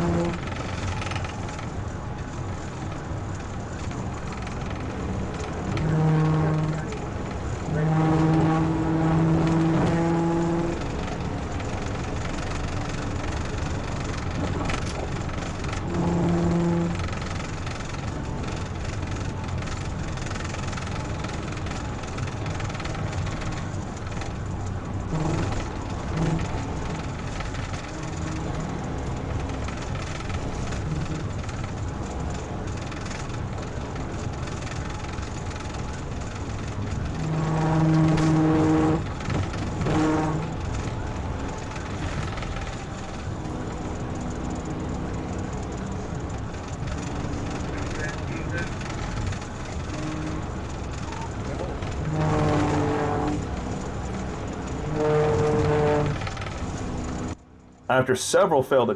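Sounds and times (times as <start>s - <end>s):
low horn blast: 0.0s - 0.8s, 3.9s - 12.2s, 12.8s - 18.3s, 22.5s - 32.5s, 36.8s - 45.8s, 49.7s - 58.9s
car engine and road noise: 0.0s - 58.9s.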